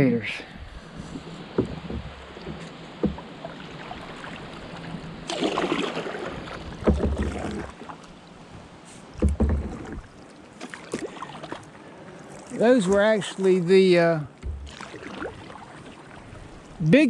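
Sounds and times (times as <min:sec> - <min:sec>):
paddle splashing in water: 0:00.8 - 0:16.9
low bumps: 0:01.0 - 0:03.5, 0:14.3 - 0:15.4.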